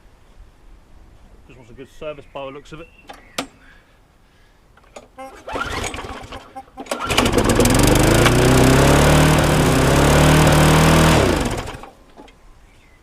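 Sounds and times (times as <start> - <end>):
lawnmower engine revving: 5.3 - 12.0.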